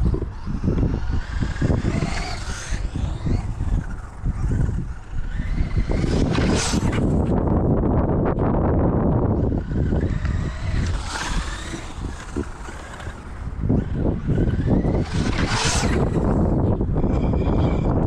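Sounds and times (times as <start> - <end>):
electric motor whining: 0.0 - 18.0
wind on microphone: 0.0 - 18.0.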